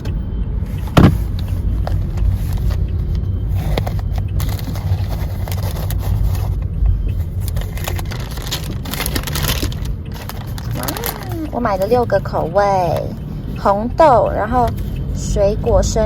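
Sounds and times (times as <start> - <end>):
car road rumble: 0.0 - 16.0.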